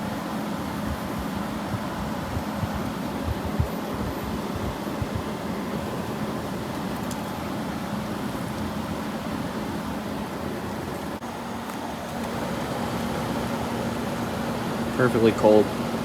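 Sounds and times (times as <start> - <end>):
air buffeting microphone: 0.0 - 7.0
air conditioner fan rushing: 0.0 - 16.0.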